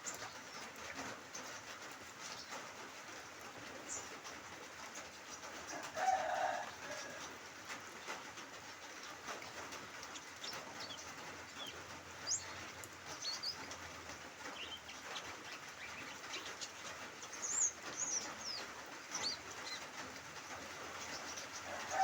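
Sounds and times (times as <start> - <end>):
small birds chirping: 0.0 - 4.3, 8.9 - 22.0
light drizzle hissing: 0.0 - 22.0.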